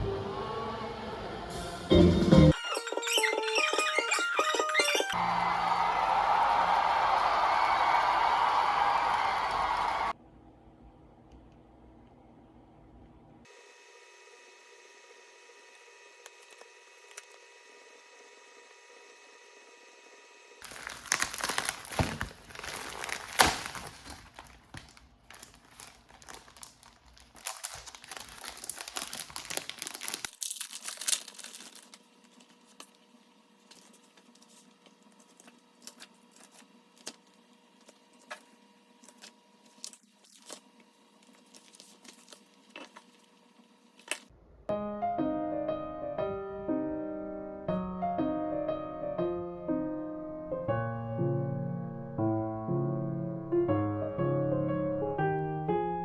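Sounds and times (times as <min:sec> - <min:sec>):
crinkly material rustling: 0:20.6 - 0:32.9, 0:33.6 - 0:43.4.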